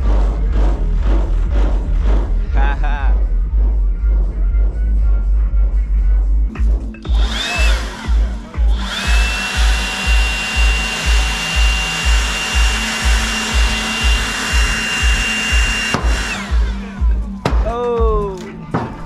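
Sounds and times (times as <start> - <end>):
background music with heavy bass beat: 0.0 - 19.0
power tool motor whining: 7.0 - 17.4.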